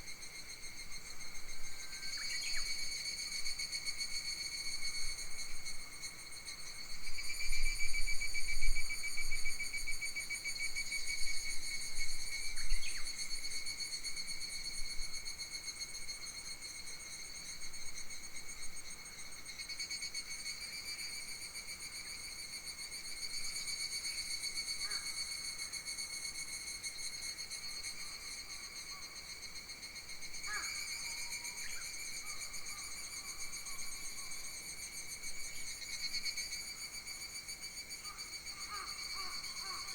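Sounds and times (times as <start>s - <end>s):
insects trilling: 35.5s - 39.9s.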